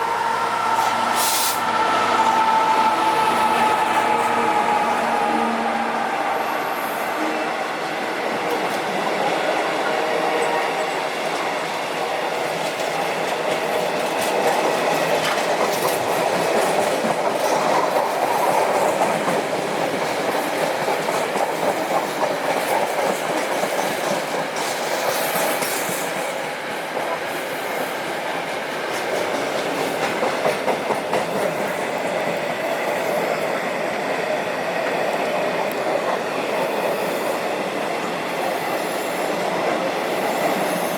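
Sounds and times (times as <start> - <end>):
train wheels clattering on rails: 8.3 - 40.9.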